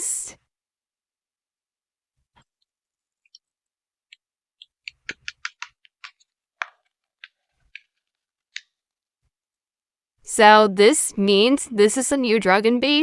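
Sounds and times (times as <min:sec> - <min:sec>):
paper clicks and taps: 0:04.1 - 0:08.8.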